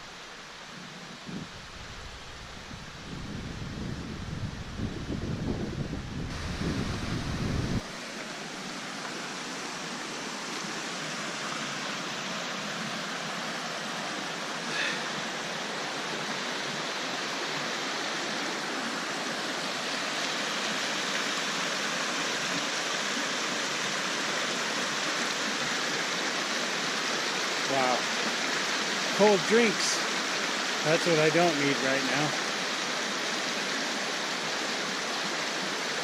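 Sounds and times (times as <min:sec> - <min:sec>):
mountain creek rushing: 0:00.0 - 0:36.0
wind buffeting microphone: 0:01.2 - 0:07.8.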